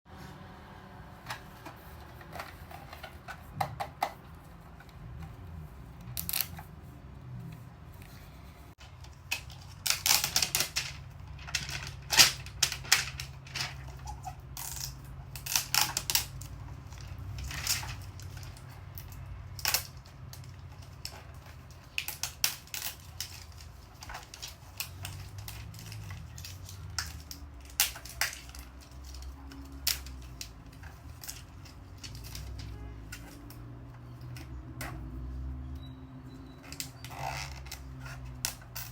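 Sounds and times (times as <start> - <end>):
plastic packaging crackling: 8.8 - 33.6.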